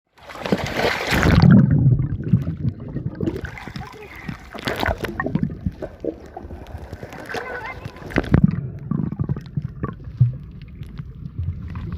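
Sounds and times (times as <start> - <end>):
sea water splashing: 0.1 - 11.9.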